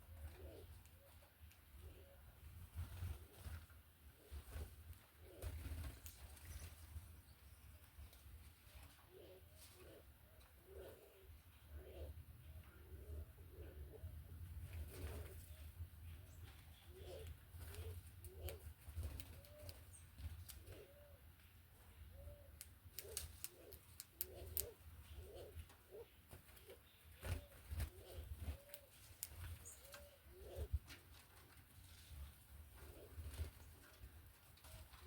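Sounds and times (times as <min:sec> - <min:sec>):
doves cooing: 0:00.0 - 0:03.5, 0:04.1 - 0:06.5, 0:08.7 - 0:15.8, 0:16.4 - 0:31.0, 0:32.7 - 0:35.0
sharp clicks: 0:22.6 - 0:24.8.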